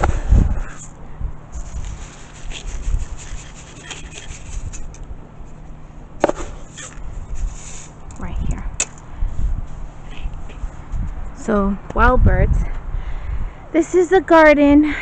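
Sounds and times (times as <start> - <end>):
rubbing and rustling handling noise: 0.8 - 8.2.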